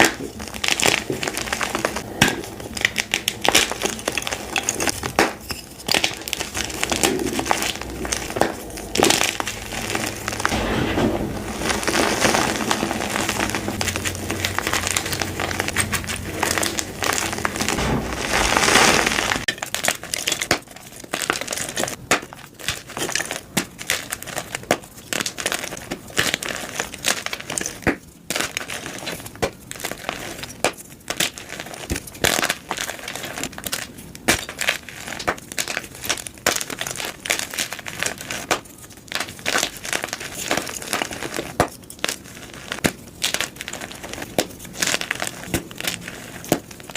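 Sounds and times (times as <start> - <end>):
chalk crunching: 5.7 - 22.0.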